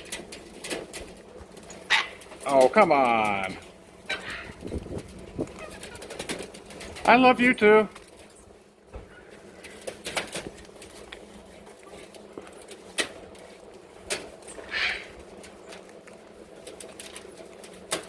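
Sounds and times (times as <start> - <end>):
parrot squawk: 4.1 - 4.6, 14.6 - 15.1.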